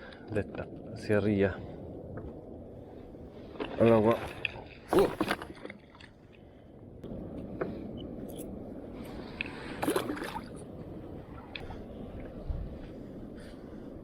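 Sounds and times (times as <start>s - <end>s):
water sloshing around a kayak: 2.4s - 6.6s, 9.0s - 12.8s.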